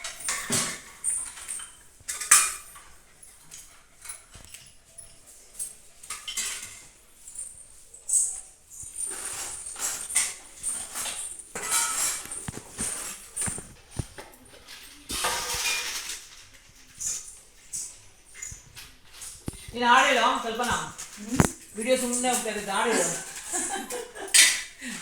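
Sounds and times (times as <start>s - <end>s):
spoons and dishes clinking: 0.0s - 25.0s.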